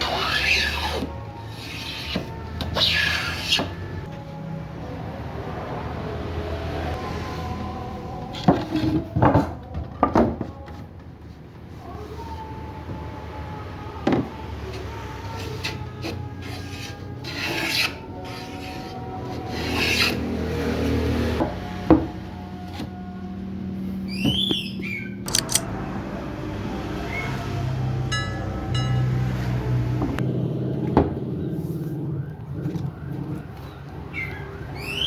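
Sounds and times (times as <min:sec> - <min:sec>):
hand tool rasping on wood: 0:00.0 - 0:03.8.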